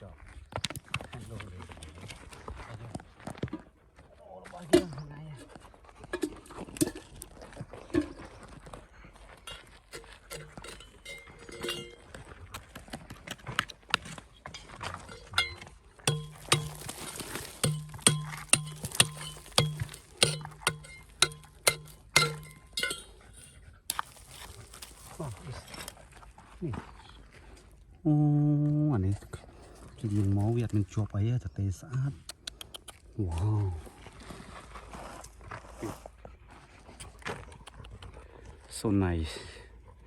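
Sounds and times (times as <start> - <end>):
metal tool striking rock: 9.5 - 12.1, 13.3 - 26.0.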